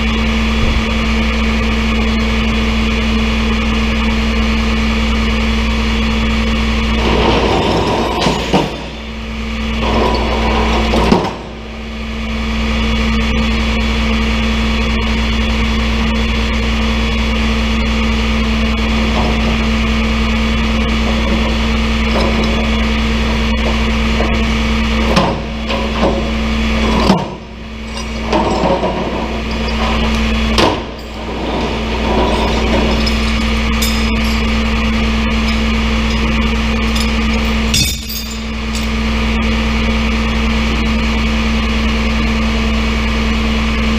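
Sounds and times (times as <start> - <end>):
truck engine humming: 16.1 - 43.8.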